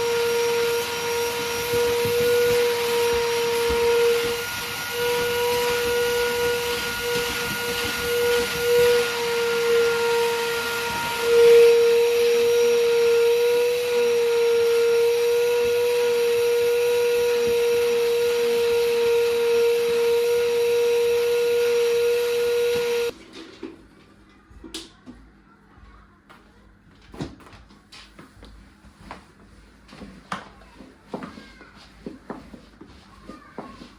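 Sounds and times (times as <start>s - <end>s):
electric appliance humming and hissing: 0.0s - 25.3s.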